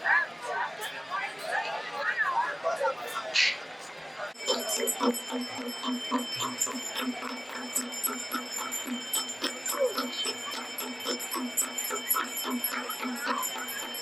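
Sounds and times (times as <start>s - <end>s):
bells ringing: 4.4s - 14.0s.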